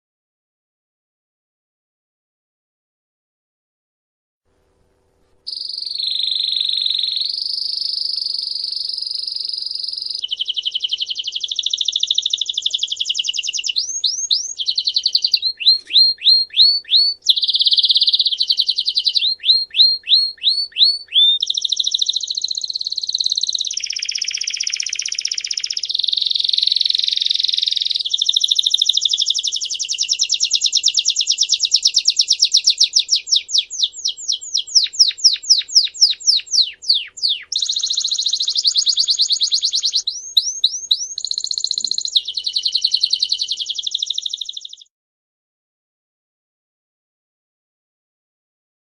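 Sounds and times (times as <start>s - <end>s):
downward whistled bird notes: 5.5s - 44.9s
songbird singing fast trills: 5.5s - 44.9s.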